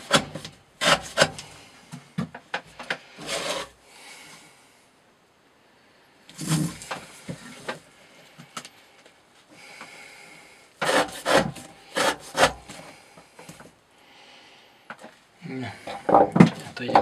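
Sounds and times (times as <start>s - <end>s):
knife cutting rope: 0.0s - 1.5s, 10.8s - 12.8s.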